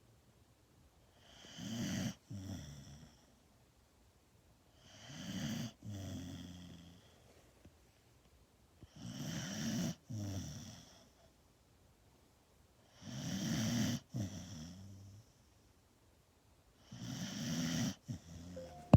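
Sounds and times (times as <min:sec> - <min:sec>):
dog snoring: 0:01.2 - 0:03.3, 0:04.8 - 0:07.2, 0:08.8 - 0:11.2, 0:12.9 - 0:15.4, 0:16.8 - 0:18.8.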